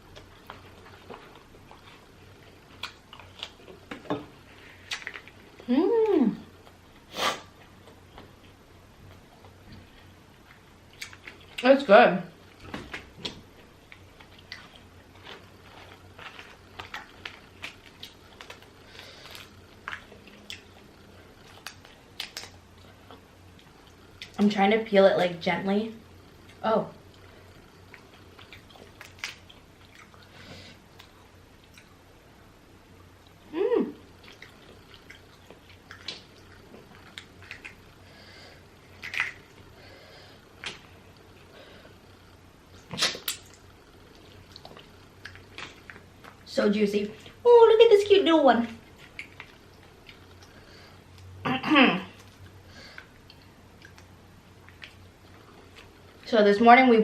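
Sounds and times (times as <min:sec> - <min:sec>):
chewing: 0:00.1 - 0:05.7, 0:06.5 - 0:11.7, 0:12.4 - 0:24.4, 0:26.2 - 0:32.0, 0:33.2 - 0:46.5, 0:48.7 - 0:51.3, 0:52.1 - 0:56.3
wet squishes: 0:38.8 - 0:39.8.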